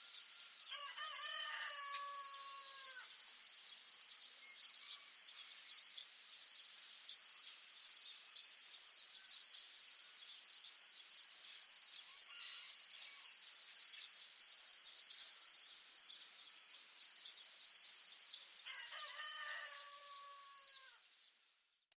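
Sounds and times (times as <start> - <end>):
faint rural background: 0.0 - 21.9
crickets chirping: 0.2 - 5.9, 6.5 - 8.7, 9.3 - 19.4, 20.5 - 20.9.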